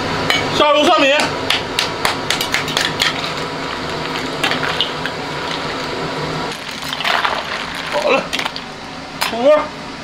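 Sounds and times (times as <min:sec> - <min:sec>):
wok sizzling: 0:01.3 - 0:09.2.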